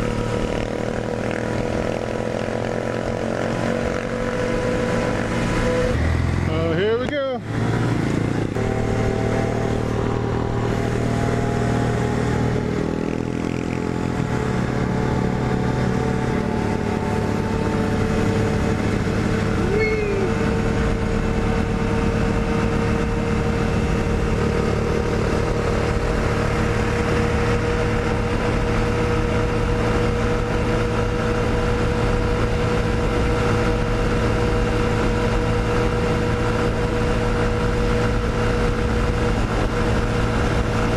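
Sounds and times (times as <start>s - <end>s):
small motorcycle engine running: 0.0s - 40.9s
wind noise: 15.9s - 40.9s.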